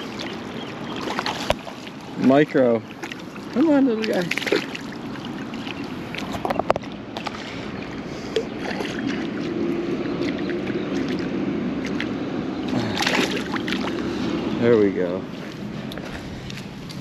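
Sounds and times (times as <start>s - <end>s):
steady low hum: 0.0s - 17.0s
wind rumbling on microphone: 4.8s - 17.0s.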